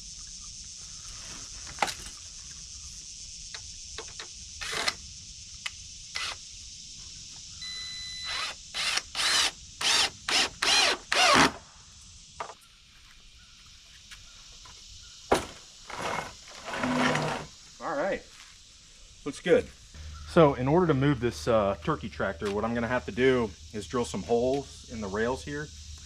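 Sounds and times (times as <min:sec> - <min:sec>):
high insect hiss: 0:00.0 - 0:26.0
power drill driving screws: 0:04.6 - 0:05.0, 0:06.2 - 0:06.4, 0:08.2 - 0:11.6, 0:15.9 - 0:17.5.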